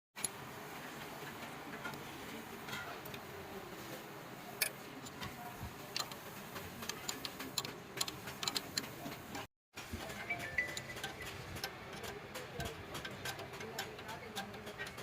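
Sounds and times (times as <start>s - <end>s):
low workshop background: 0.2s - 15.0s
clicks and taps of hand tools: 10.4s - 15.0s.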